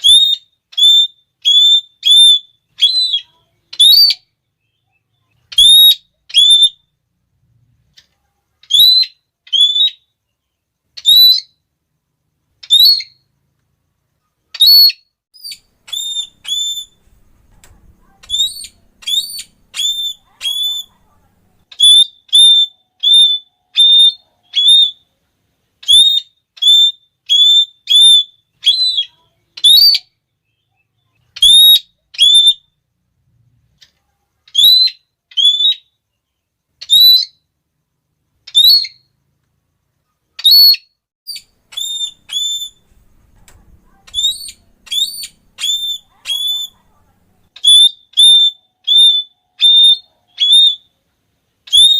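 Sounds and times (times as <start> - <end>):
parrot shrill calls: 0.0 - 4.3, 5.5 - 6.9, 8.6 - 10.1, 11.0 - 11.6, 12.6 - 13.2, 14.5 - 17.4, 18.0 - 21.0, 21.7 - 25.1, 25.8 - 30.2, 31.3 - 32.7, 34.5 - 36.0, 36.8 - 37.4, 38.4 - 39.1, 40.4 - 43.1, 43.8 - 46.9, 47.5 - 50.9, 51.7 - 51.9.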